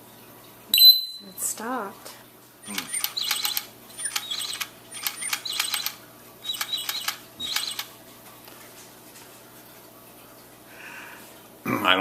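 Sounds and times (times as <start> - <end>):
toy bird clicking and chirping: 2.6 - 7.9.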